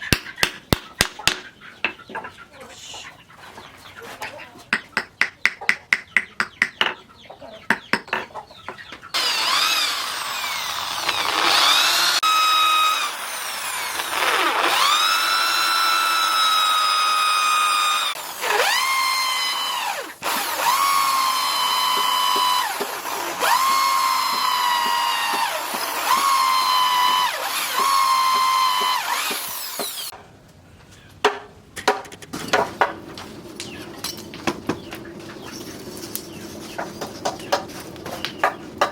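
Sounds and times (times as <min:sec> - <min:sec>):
sharp metal and wood knocks: 0:00.1 - 0:02.0, 0:04.7 - 0:07.0, 0:07.7 - 0:08.3, 0:31.2 - 0:33.0, 0:36.8 - 0:38.9
electric power tool whining: 0:09.1 - 0:30.1.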